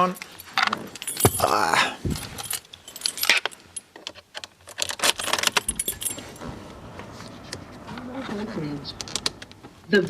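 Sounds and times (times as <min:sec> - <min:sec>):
car keys jangling: 0:00.3 - 0:06.5.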